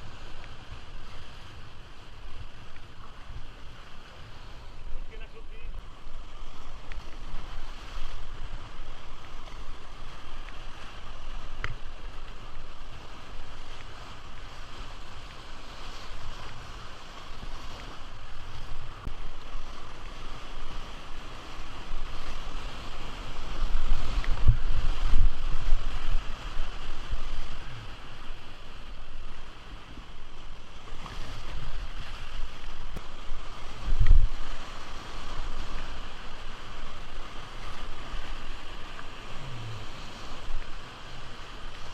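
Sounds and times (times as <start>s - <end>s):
river water rushing: 0.0s - 41.9s
wind buffeting microphone: 17.3s - 41.9s.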